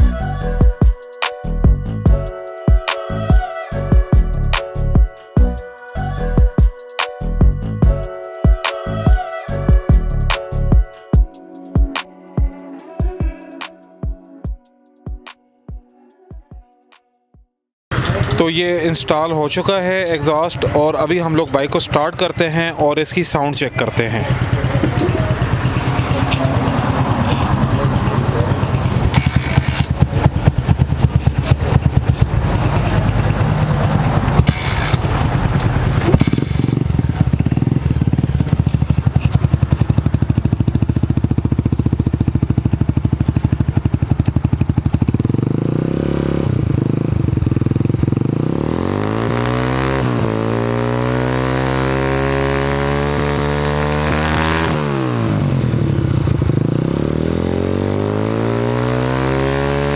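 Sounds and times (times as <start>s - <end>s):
motorcycle engine revving: 17.9s - 18.9s, 24.1s - 59.9s.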